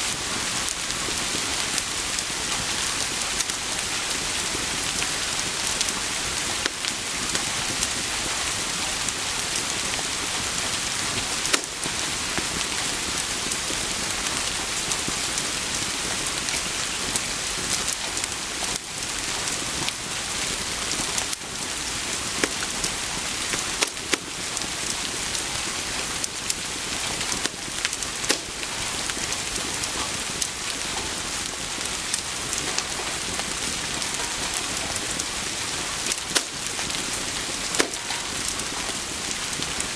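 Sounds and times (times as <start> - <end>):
rain hissing: 0.0 - 39.9
sharp clicks: 37.8 - 38.3.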